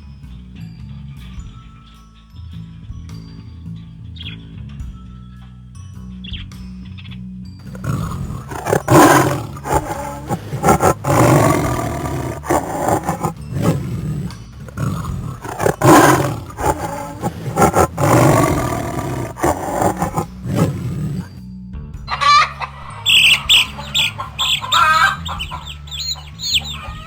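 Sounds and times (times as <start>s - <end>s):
big cat roaring: 7.7s - 21.3s
big cat grunts: 7.7s - 21.4s.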